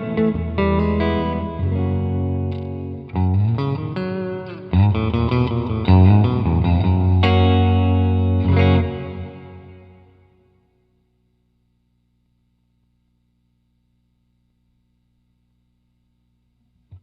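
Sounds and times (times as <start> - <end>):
electric guitar with reverb: 0.0 - 11.0.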